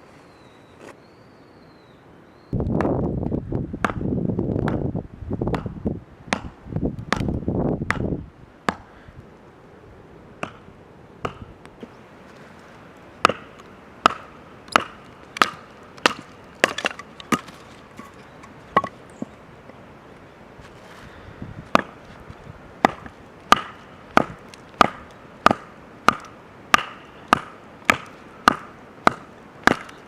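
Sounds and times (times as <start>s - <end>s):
wood scraping and crunching: 14.7s - 19.8s, 20.6s - 24.9s.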